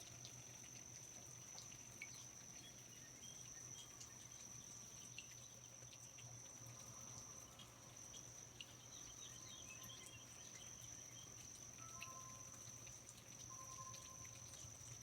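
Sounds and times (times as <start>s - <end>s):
light drips and ticks: 0.0s - 15.0s
faint chirps: 7.0s - 15.0s.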